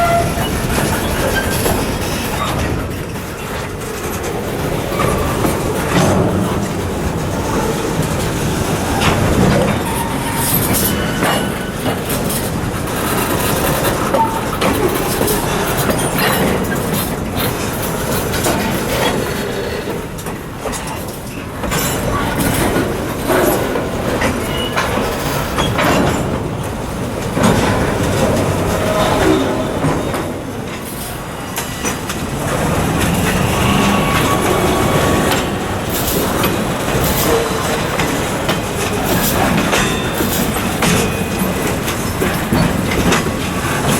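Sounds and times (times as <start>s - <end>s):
wheel squeals: 0.0s - 2.8s, 8.7s - 20.0s, 20.8s - 26.3s, 30.9s - 43.9s
train wheels clattering over joints: 0.0s - 43.9s.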